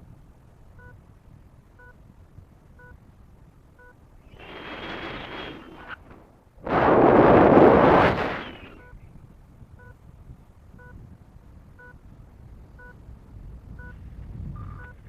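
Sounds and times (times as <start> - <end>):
wind blasting across microphone: 0.0 - 15.0
variometer beeping: 0.8 - 1.0, 1.8 - 2.0, 2.8 - 3.0, 9.8 - 10.0, 10.8 - 11.0, 11.8 - 12.0, 12.8 - 13.0.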